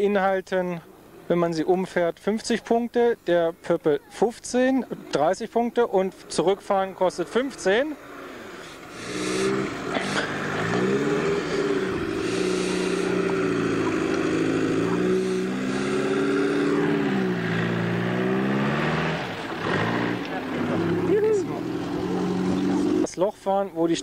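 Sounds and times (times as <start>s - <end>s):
off-road vehicle engine revving: 5.0s - 23.1s.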